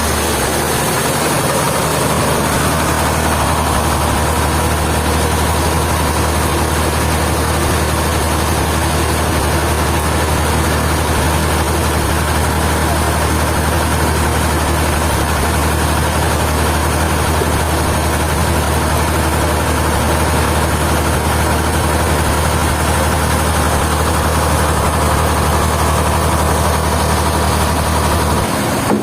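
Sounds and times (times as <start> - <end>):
heavy engine idling: 0.0 - 29.0.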